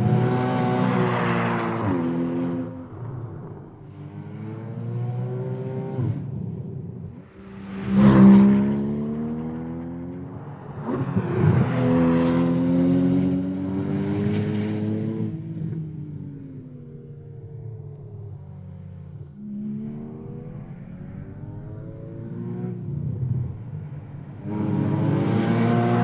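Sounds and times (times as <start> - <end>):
car engine revving: 7.1 - 15.5, 18.0 - 26.0.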